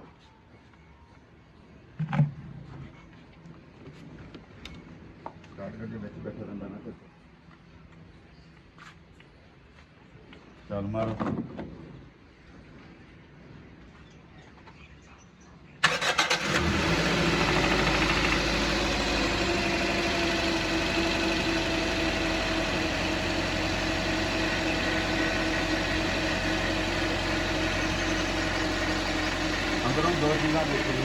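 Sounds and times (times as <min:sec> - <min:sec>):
car engine starter cranking: 0:15.8 - 0:24.8
car engine idling: 0:15.8 - 0:31.0.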